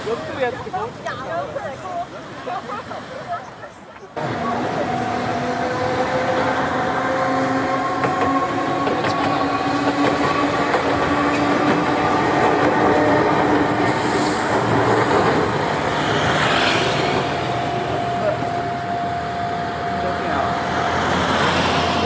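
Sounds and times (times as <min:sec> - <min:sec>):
wheels clattering on rails: 0:04.1 - 0:18.6
train motor whine: 0:04.2 - 0:22.0
hiss: 0:13.8 - 0:15.0.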